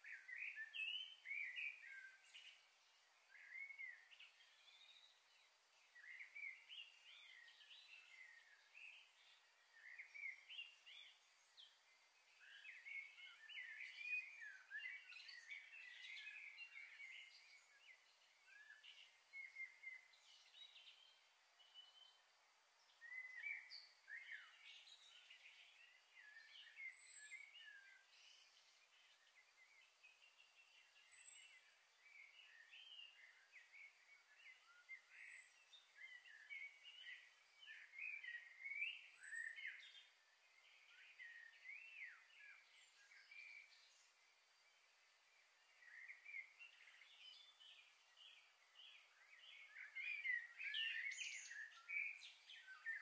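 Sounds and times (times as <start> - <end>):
faint steady hiss: 0.0 - 53.0
small birds chirping: 0.0 - 53.0.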